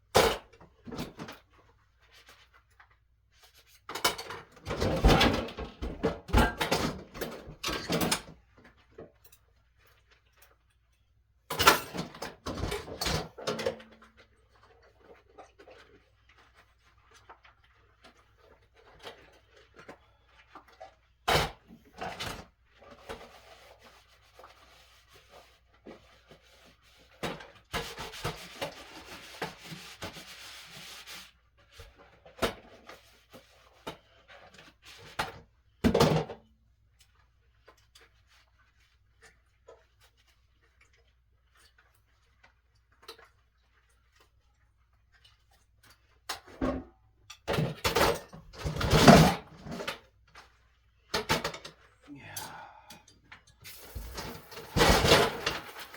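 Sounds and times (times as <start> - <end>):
dishes and utensils clattering: 53.8 - 55.9.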